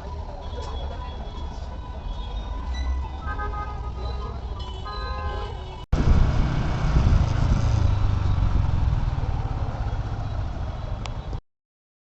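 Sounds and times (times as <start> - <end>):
motorcycle engine rumbling: 6.0 - 11.4.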